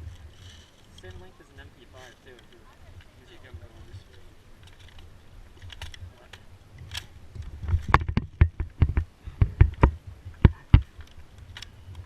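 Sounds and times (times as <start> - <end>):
sharp knocks and clicks: 6.9 - 11.7.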